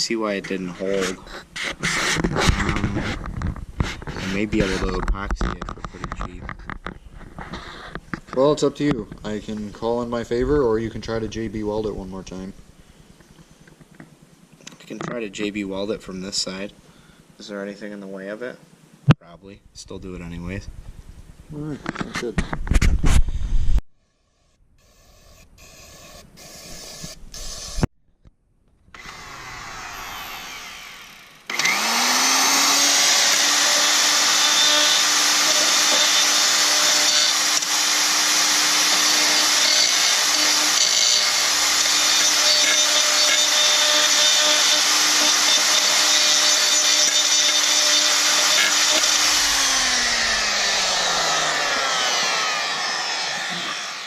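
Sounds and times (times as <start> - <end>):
clicks and handling noises: 0.5 - 9.2
power tool motor whining: 28.9 - 54.0.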